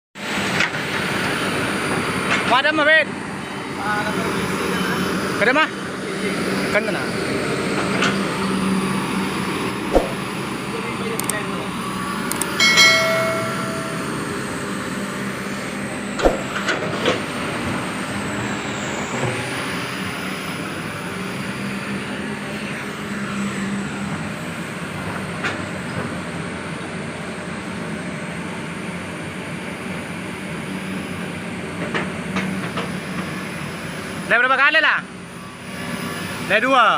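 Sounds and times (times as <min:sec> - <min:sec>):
sharp knocks: 0:09.9 - 0:10.2, 0:16.2 - 0:16.6
short high-pitched tone: 0:12.6 - 0:14.6.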